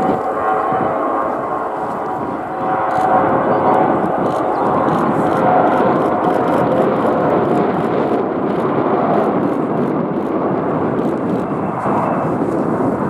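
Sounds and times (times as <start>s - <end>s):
jet engines at takeoff power: 0.0s - 13.0s.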